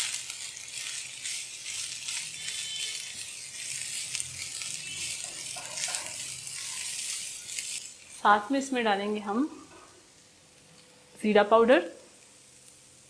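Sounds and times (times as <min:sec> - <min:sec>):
spatula scraping a pan: 0:00.0 - 0:08.5
meat sizzling in a pan: 0:00.0 - 0:10.4, 0:12.0 - 0:13.0.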